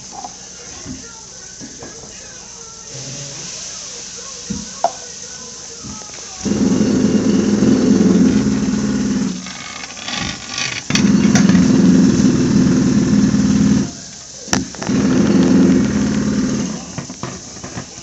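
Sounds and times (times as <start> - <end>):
heavy machinery engine running hard: 0.0 - 18.0.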